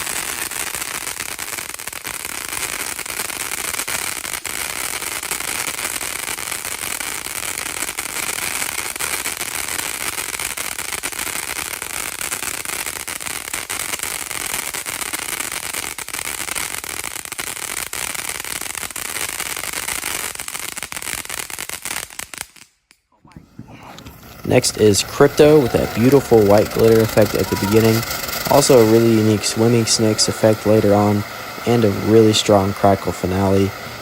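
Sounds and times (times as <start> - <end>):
firework fountain crackling: 0.0 - 34.0.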